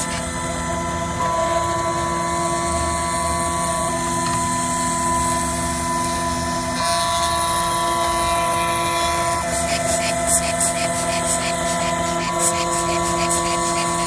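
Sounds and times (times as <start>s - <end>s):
cnc machine high whine: 0.0s - 14.0s.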